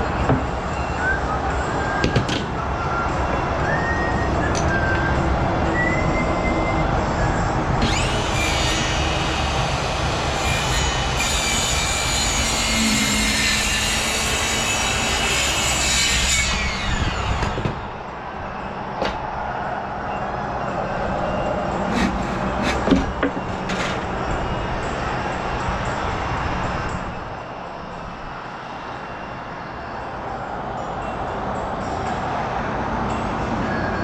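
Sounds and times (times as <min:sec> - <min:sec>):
power tool motor running: 0:21.9 - 0:22.9.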